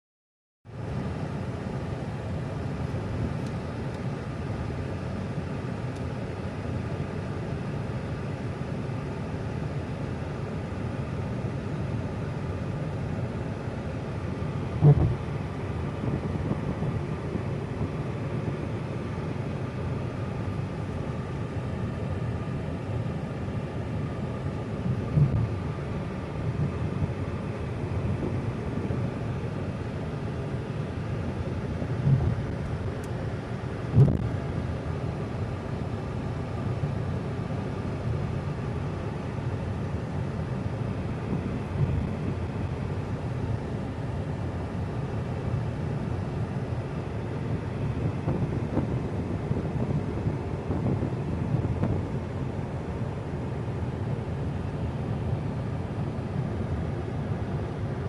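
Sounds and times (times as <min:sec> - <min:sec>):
moving car rumble: 0:00.7 - 0:58.0
sharp thump: 0:34.0 - 0:34.2.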